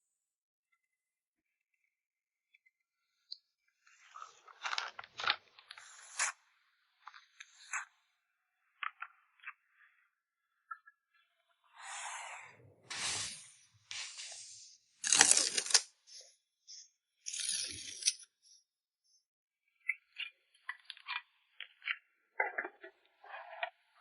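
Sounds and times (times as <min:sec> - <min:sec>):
packing materials tearing: 0:15.0 - 0:15.9.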